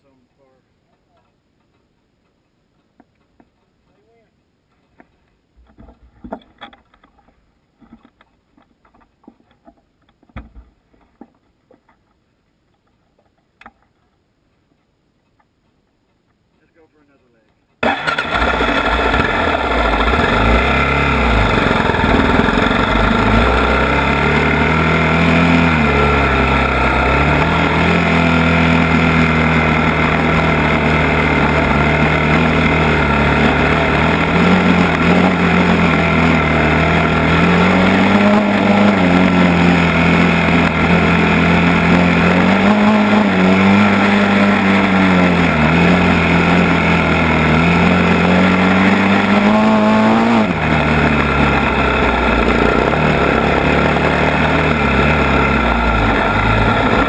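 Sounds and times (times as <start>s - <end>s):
atv engine revving: 17.8s - 57.0s
steady rush of noise: 17.8s - 57.0s.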